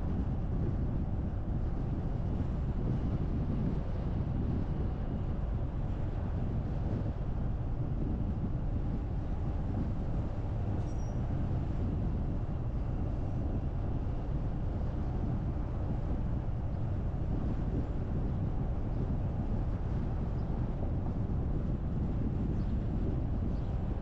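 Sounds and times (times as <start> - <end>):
car road and wind noise: 0.0 - 24.0
faint high chirp: 10.8 - 11.2.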